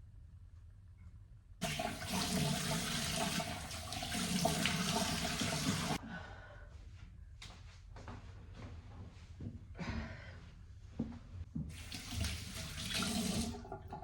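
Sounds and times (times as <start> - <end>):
water running hard: 1.6 - 6.0, 11.7 - 14.0.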